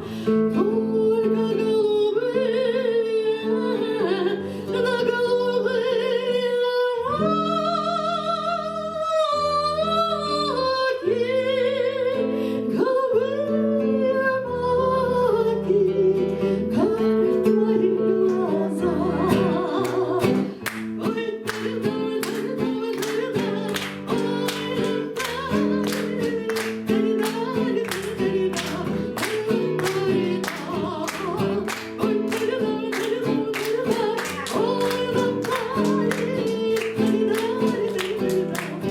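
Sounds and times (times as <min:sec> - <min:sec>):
person singing: 0:00.0 - 0:38.9
acoustic guitar strumming: 0:14.4 - 0:38.9.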